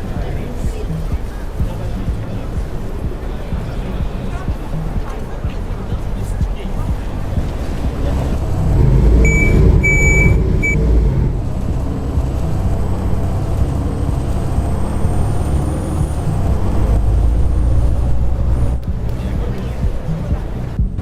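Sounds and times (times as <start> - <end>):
bus diesel engine whining: 0.0 - 20.8
electronic beeps: 8.8 - 11.3.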